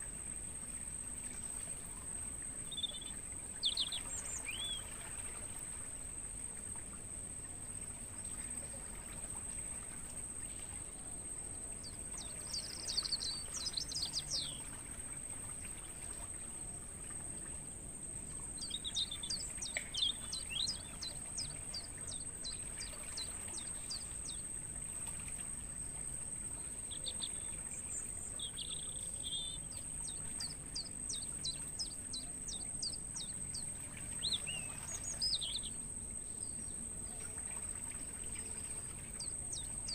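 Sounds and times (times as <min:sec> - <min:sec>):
crickets trilling: 0:00.0 - 0:39.9
songbirds calling: 0:01.8 - 0:05.7, 0:10.5 - 0:39.9.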